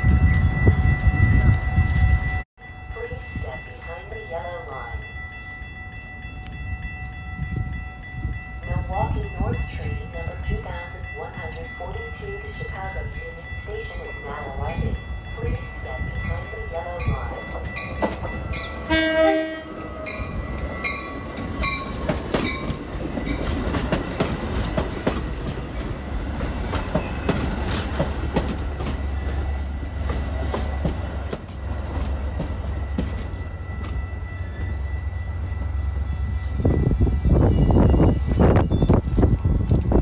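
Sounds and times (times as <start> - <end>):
train rumbling: 0.0 - 40.0
train horn: 18.8 - 20.4.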